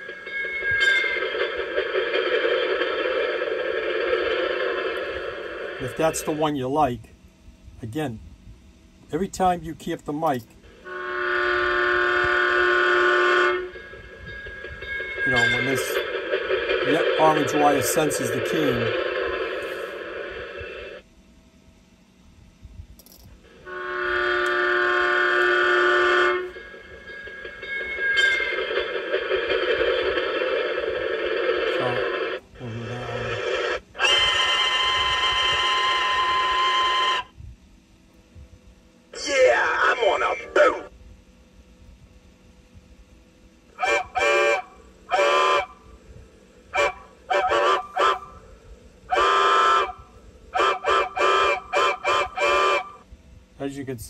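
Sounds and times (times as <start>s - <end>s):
noisy train sound: 0.0s - 54.0s
train horn chord: 10.7s - 16.1s, 23.5s - 29.2s, 43.8s - 45.9s, 46.7s - 53.0s.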